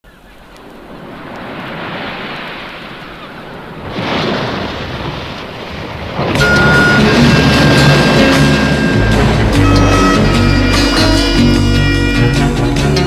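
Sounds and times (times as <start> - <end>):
ocean waves washing in: 0.1 - 13.0
band music: 6.4 - 13.0.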